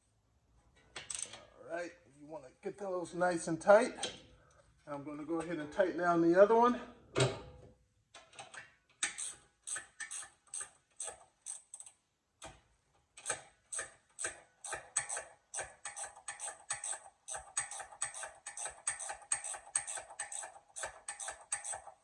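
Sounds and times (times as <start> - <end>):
ratchet wrench clicking: 9.0 - 12.0, 13.2 - 22.0.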